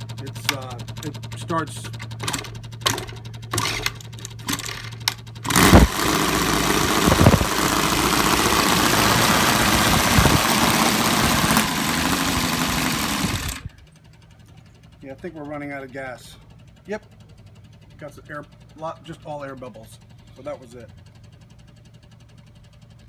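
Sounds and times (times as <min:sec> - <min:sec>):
radial engine popping and running: 0:00.0 - 0:13.7.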